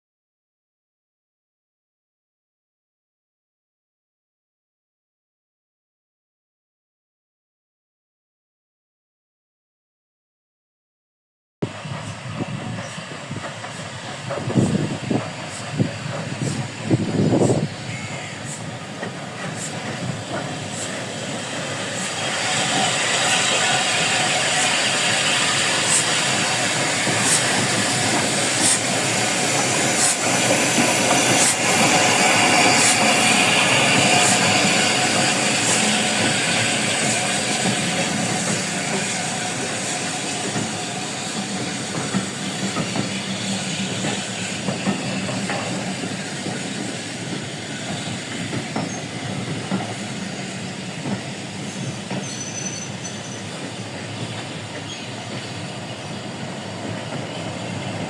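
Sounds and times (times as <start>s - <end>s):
train passing on rails: 11.6s - 58.0s.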